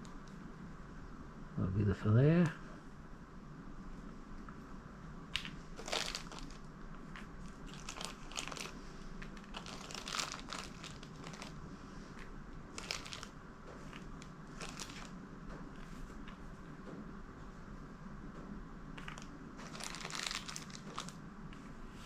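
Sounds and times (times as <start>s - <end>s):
packaging crinkling and rustling: 5.3s - 15.2s, 19.0s - 21.2s.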